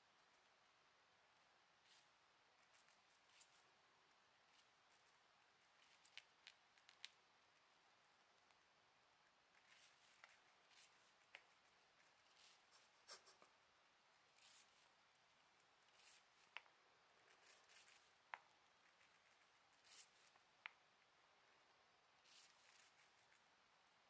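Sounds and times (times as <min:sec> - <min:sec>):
birds pecking and nibbling apple: 0:01.8 - 0:21.4, 0:22.2 - 0:23.6.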